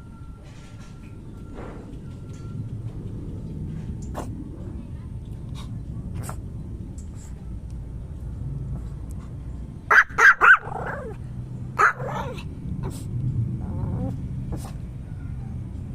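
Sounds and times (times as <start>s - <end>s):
small dog yapping: 9.9s - 11.2s, 11.8s - 13.0s.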